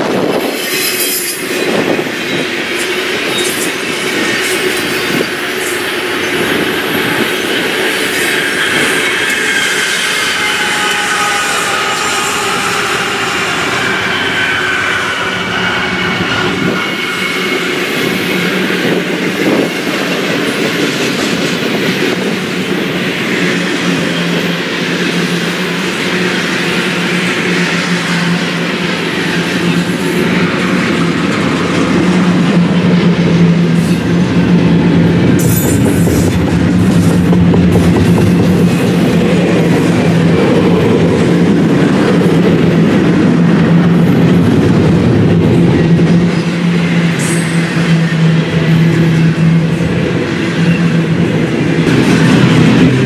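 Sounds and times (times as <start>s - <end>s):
diesel locomotive engines: 0.0s - 53.0s
train wheels rumbling on rails: 0.0s - 53.0s.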